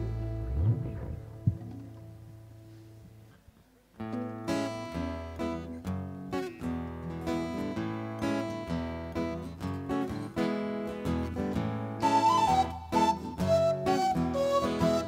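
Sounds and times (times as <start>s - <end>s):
acoustic guitar strumming chords: 0.0s - 2.4s, 4.1s - 15.0s
bass line: 0.0s - 2.5s
flute-like melody: 11.8s - 15.0s.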